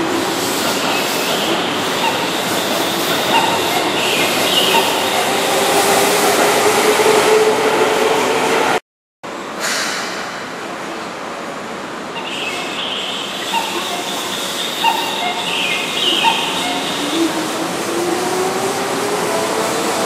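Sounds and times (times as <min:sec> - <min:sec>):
train wheels rumbling: 0:00.0 - 0:08.8, 0:09.4 - 0:20.0.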